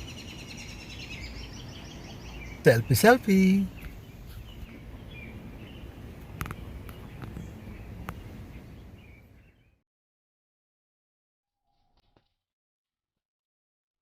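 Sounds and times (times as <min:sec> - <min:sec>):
faint bird chirps: 0:00.0 - 0:09.8.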